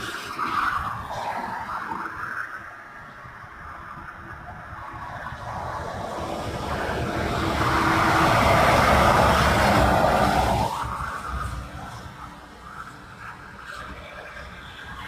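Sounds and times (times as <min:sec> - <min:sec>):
vehicle engine rumble: 0:00.0 - 0:15.0
tyres hissing on wet road: 0:04.8 - 0:15.0.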